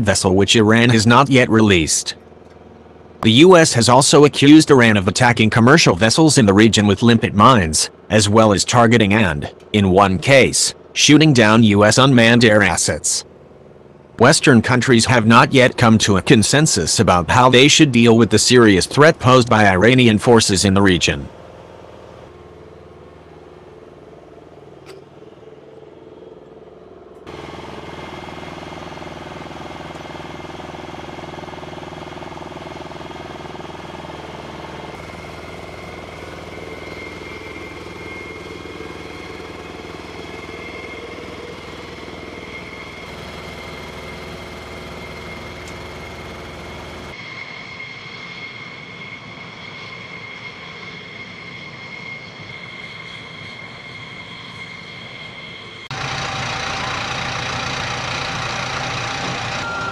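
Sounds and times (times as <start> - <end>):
ground equipment running: 0.0 - 47.2, 55.8 - 59.9
high whine of jet turbine: 0.0 - 59.9
steady engine hum: 0.0 - 59.9.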